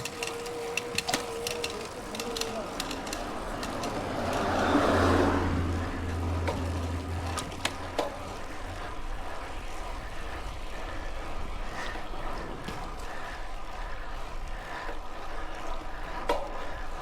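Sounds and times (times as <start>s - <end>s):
sharp clicks: 0.0s - 4.5s
vehicle passing close: 0.0s - 10.0s
road and wind noise: 0.0s - 17.0s.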